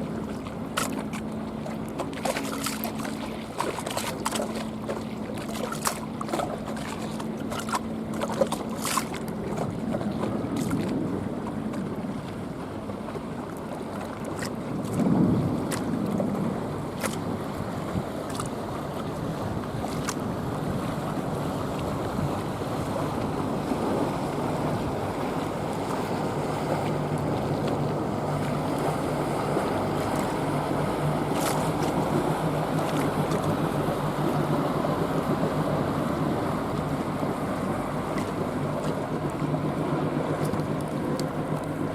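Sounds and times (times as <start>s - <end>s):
motorboat engine humming: 0.0s - 41.9s
water lapping: 0.0s - 41.9s
wind buffeting microphone: 8.9s - 41.9s.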